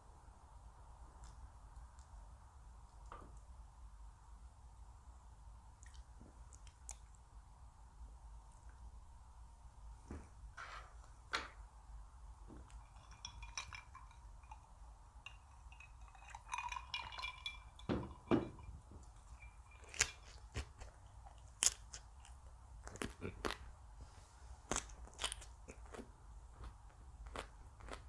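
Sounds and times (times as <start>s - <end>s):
utensils clinking on dishes: 12.7s - 20.4s
chewing and crunching: 19.0s - 23.8s, 24.6s - 28.0s.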